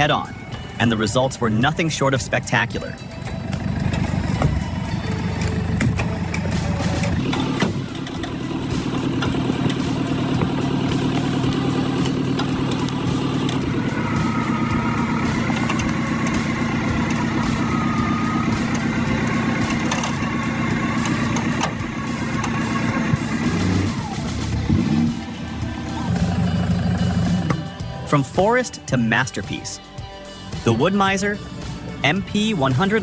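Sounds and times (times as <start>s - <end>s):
pickup engine running under load: 0.0s - 29.2s
winch whine: 3.0s - 28.4s.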